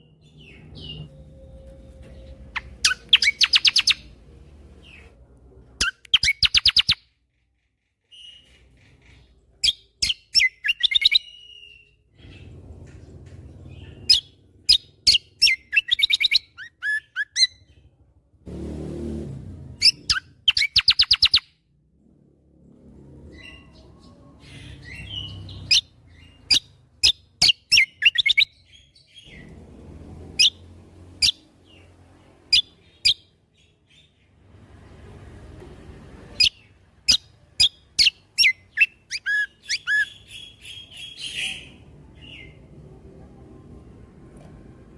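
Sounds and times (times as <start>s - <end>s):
low rumbling background noise: 28.8s - 44.9s.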